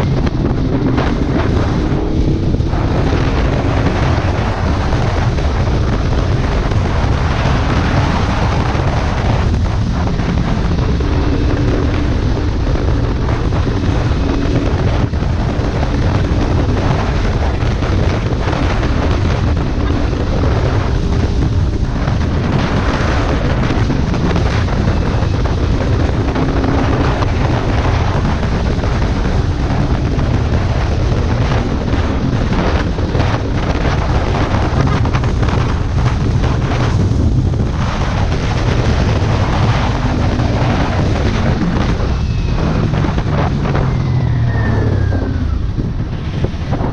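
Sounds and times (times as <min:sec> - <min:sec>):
motorcycle engine drone: 0:00.0 - 0:46.9
wind noise on microphone: 0:00.0 - 0:46.9.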